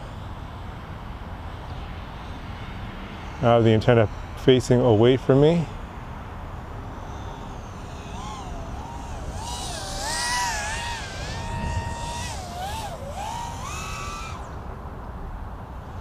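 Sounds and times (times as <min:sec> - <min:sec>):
quadcopter motors whining: 0:05.7 - 0:14.9.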